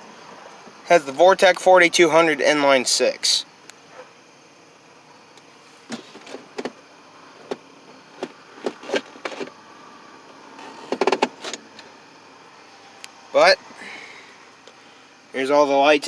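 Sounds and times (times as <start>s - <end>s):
sharp clicks and knocks: 10.6s - 11.9s.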